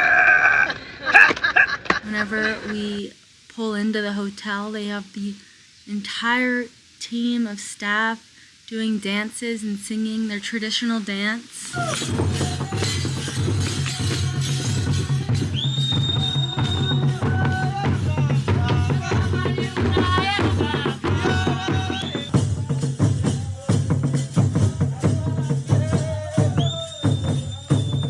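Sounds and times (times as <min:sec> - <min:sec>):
drums: 0:11.7 - 0:28.0
group singing: 0:11.7 - 0:28.0
rattles shaking steady beat: 0:11.8 - 0:28.0.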